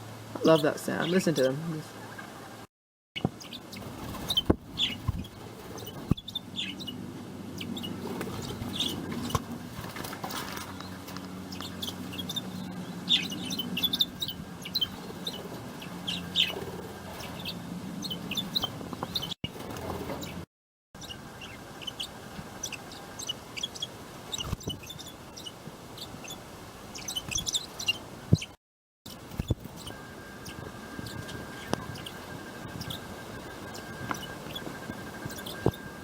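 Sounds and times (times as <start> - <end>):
parrots chirping: 3.2 - 19.4, 21.0 - 28.6, 29.3 - 36.0
low steady hum: 3.3 - 20.4, 29.1 - 36.0.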